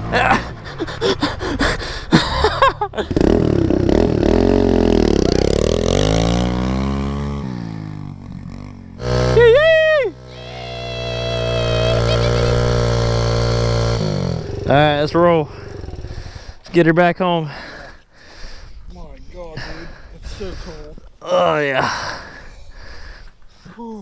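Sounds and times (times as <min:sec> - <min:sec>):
mini bike passing by: 0:03.0 - 0:16.4
engine revving: 0:03.0 - 0:16.6
mini bike engines running: 0:03.1 - 0:16.5.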